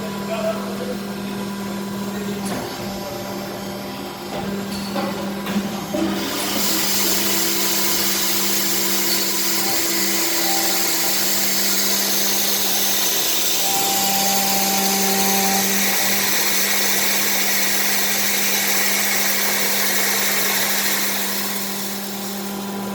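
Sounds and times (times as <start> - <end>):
blower rushing air: 5.9 - 22.9
low motor hum: 6.8 - 22.9.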